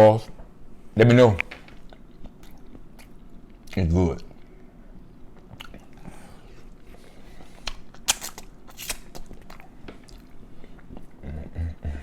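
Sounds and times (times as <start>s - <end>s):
person chewing food: 1.8s - 11.4s.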